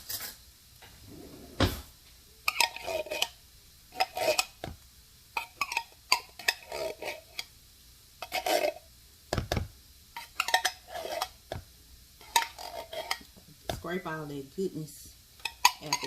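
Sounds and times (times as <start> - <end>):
spoon scraping metal can: 2.5 - 4.6, 5.4 - 7.5, 8.2 - 8.8, 10.2 - 11.4, 12.2 - 13.3, 15.4 - 16.0.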